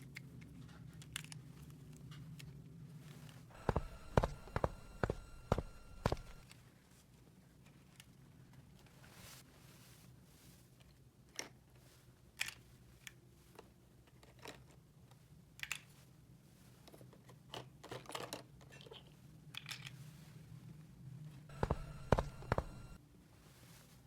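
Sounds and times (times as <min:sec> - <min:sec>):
faint low hum: 0:03.5 - 0:06.4, 0:21.5 - 0:23.0.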